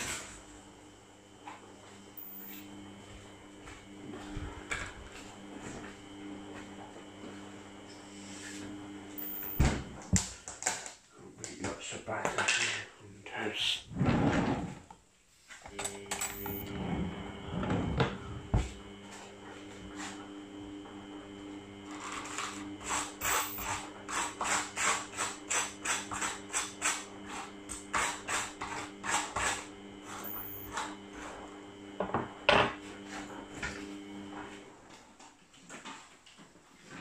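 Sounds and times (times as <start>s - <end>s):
steady low hum: 0.0s - 10.2s, 15.7s - 34.8s.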